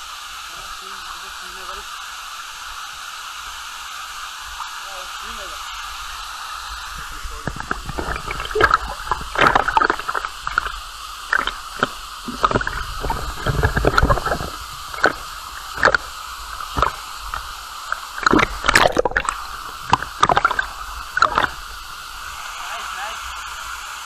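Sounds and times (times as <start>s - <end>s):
waterfall rushing: 0.0s - 2.6s, 3.5s - 24.0s
water splashing and sloshing: 6.8s - 22.8s.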